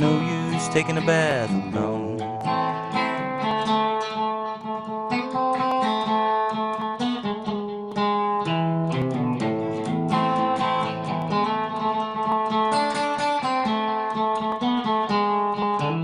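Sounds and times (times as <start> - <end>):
acoustic plucked-string instrument: 0.0 - 16.0.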